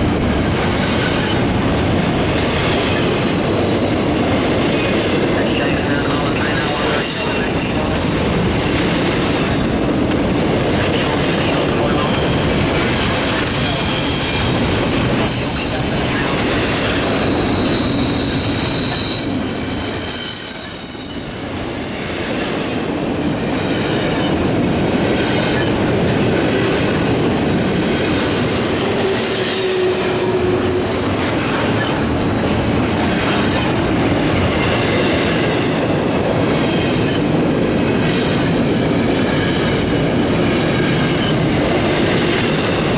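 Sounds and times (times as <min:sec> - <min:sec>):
freight train wheels rumbling on rail: 0:00.0 - 0:42.9
high wheel squeal: 0:03.2 - 0:08.5, 0:15.2 - 0:23.1, 0:27.5 - 0:33.3.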